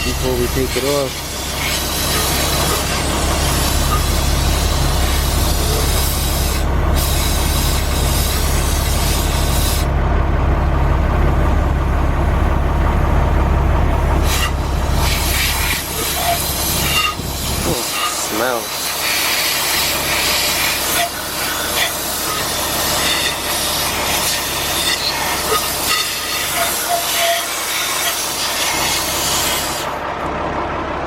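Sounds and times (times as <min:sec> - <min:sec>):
machine humming: 0:00.0 - 0:31.0
hissing cleaning jet: 0:15.0 - 0:29.8.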